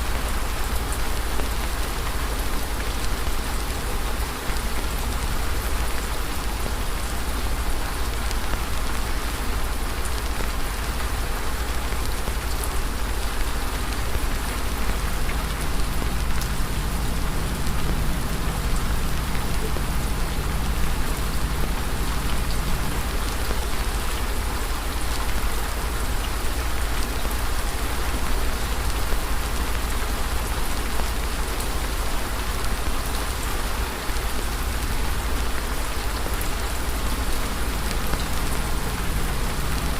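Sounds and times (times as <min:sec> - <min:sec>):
hiss of falling rain: 0:00.0 - 0:39.9
low rumble: 0:37.3 - 0:39.9.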